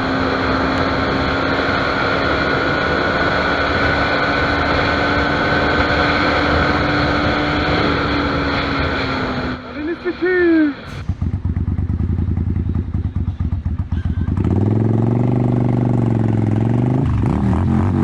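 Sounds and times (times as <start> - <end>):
wind noise: 0.0 - 11.6
motorcycle engine droning: 0.0 - 18.0.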